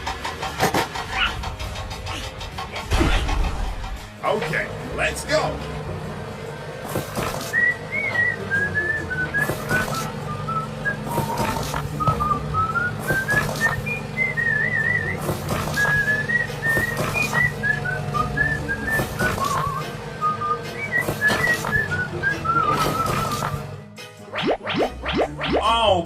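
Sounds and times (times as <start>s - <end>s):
steady low hum: 0.1s - 23.8s
whistled tune with trills: 7.1s - 25.9s.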